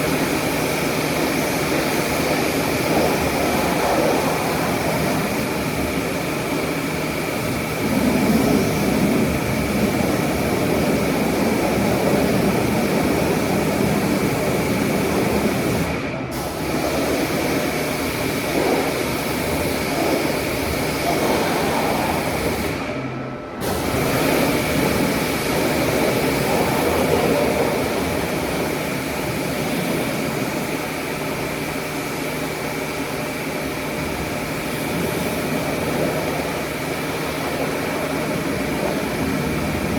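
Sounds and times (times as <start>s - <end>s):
car wash machinery rushing: 0.0s - 39.9s.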